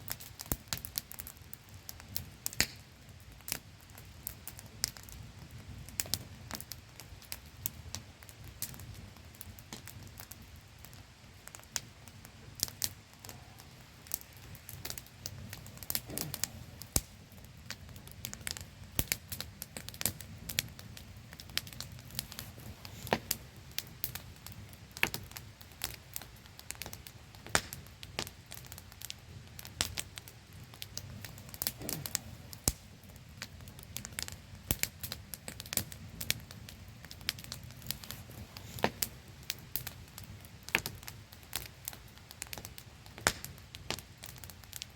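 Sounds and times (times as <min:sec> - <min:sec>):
campfire crackling and popping: 0:00.0 - 0:44.9.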